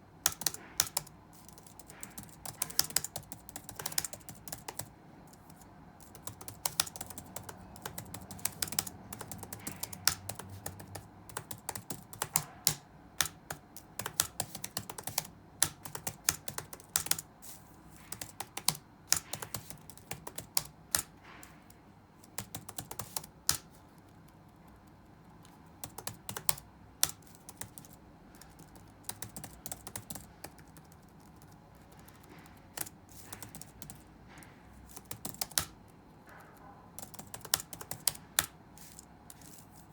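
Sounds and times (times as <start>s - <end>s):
typing on computer keyboard: 0.2s - 17.3s, 18.0s - 39.6s.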